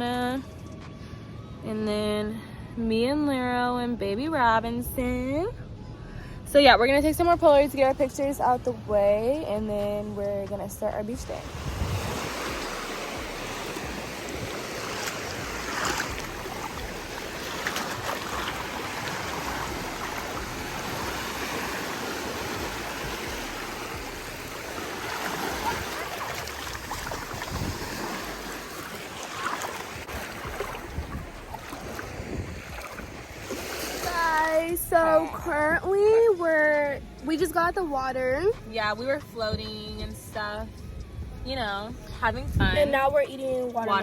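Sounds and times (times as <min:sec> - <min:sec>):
ocean surf washing ashore: 0:11.2 - 0:35.1.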